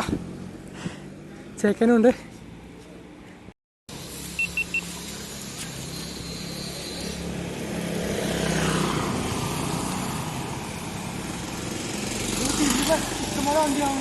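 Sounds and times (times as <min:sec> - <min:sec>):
vehicle engine passing by: 0:03.9 - 0:14.0.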